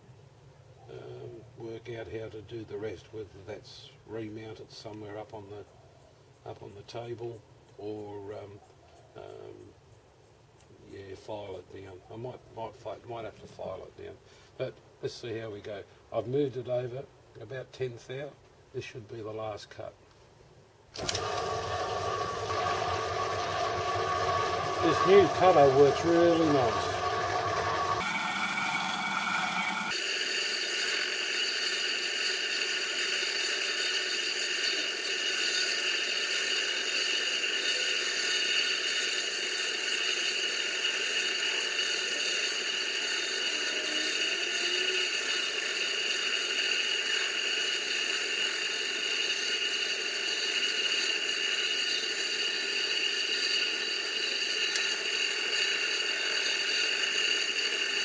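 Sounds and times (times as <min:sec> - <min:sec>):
hiss of cutting: 0:21.0 - 0:58.0
milling machine whine: 0:21.0 - 0:58.0.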